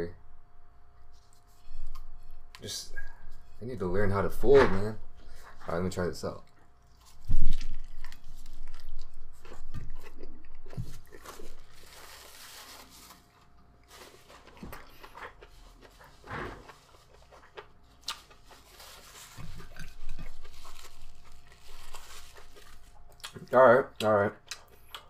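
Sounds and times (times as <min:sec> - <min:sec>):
chewing and mouth sounds: 0:06.4 - 0:11.7, 0:14.4 - 0:25.0.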